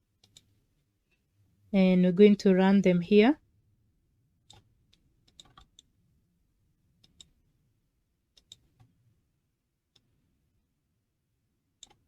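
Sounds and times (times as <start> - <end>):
computer mouse and key clicks: 0.2 - 0.6, 4.4 - 5.9, 7.0 - 7.4, 8.3 - 9.0, 11.8 - 12.0.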